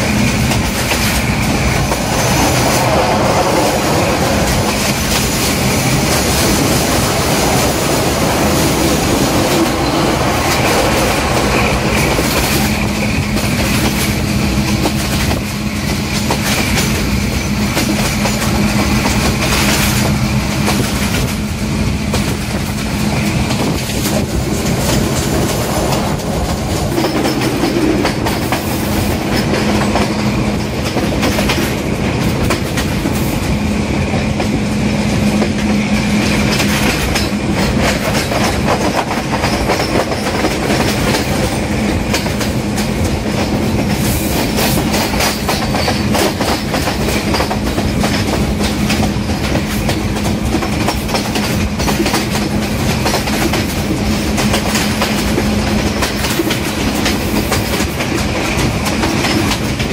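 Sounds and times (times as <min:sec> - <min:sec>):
diesel locomotive drone: 0:00.0 - 0:59.9
train rumble: 0:00.0 - 0:59.9
wheels clickety-clack over rail joints: 0:00.0 - 0:59.9.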